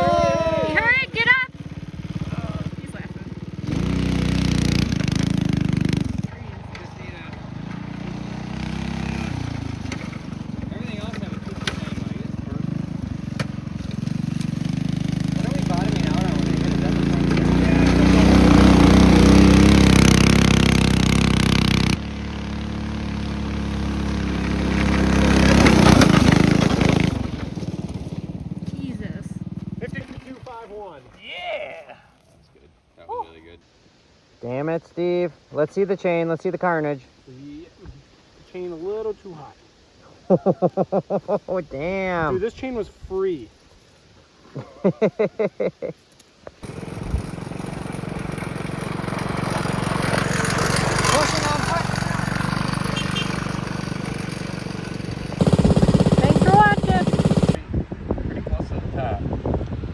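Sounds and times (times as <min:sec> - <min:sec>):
mini bike engine running: 0:00.0 - 0:30.6, 0:46.6 - 0:57.6
person laughing: 0:40.2 - 0:41.7, 0:44.6 - 0:46.0.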